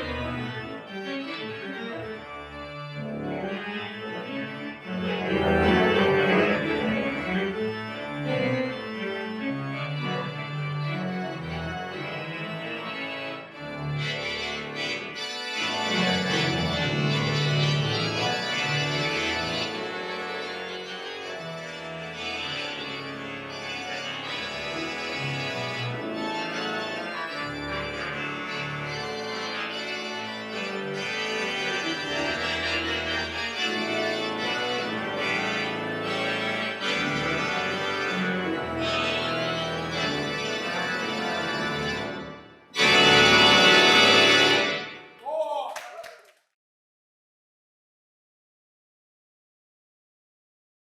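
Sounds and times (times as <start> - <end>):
pipe organ playing: 0.0 - 45.1.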